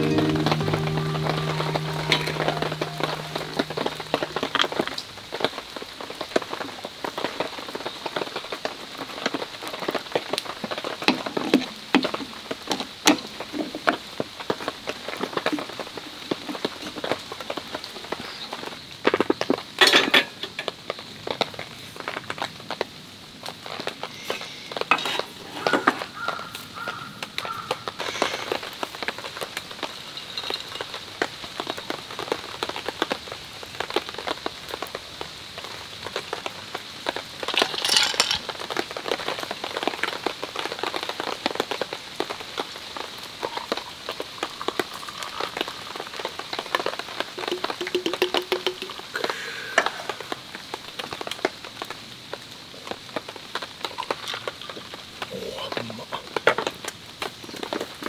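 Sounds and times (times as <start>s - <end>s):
rain pattering on a tarp: 0.0s - 58.0s.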